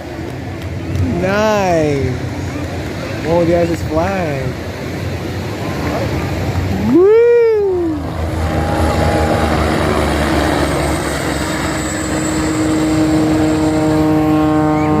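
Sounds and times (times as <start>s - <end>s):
propeller airplane engine droning: 0.0s - 15.0s
rushing background noise: 0.0s - 15.0s
rising and falling whoop: 6.7s - 12.2s.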